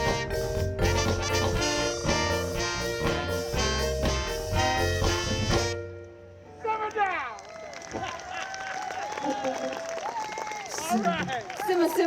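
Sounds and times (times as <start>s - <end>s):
bass and drums: 0.0s - 6.0s
horn section playing: 0.0s - 6.4s.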